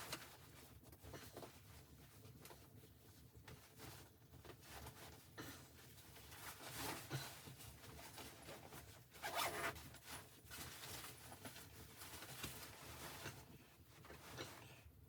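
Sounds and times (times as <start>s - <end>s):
zipper being pulled: 9.2s - 9.8s.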